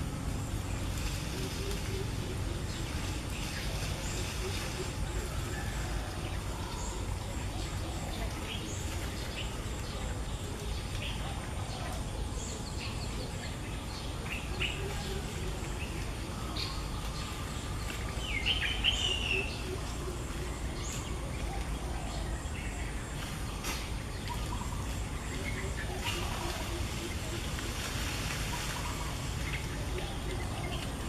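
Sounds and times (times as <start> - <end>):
low outdoor rumble: 0.0 - 31.0
bird warbling call: 14.1 - 23.2.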